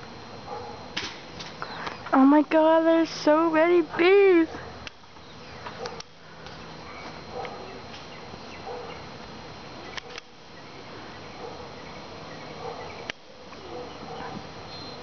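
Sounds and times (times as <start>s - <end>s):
bees buzzing: 0.0s - 15.0s
sharp clicks: 5.6s - 6.6s.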